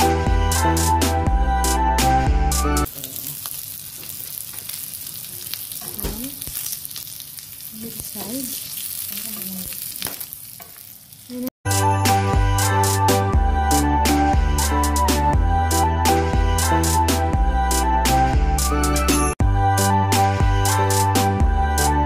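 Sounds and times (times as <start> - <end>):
background music: 0.0 - 2.9, 11.7 - 22.0
meat sizzling in grill pan: 2.9 - 11.5.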